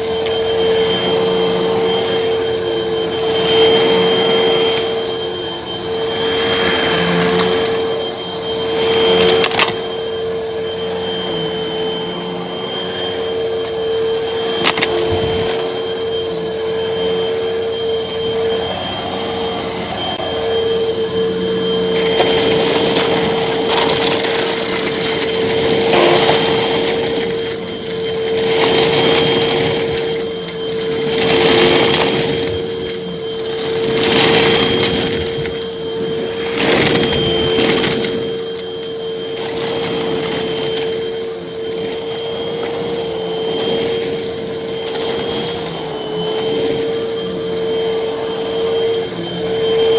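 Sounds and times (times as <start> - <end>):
vacuum cleaner running: 0.0 - 49.9
rush of air: 5.8 - 9.0.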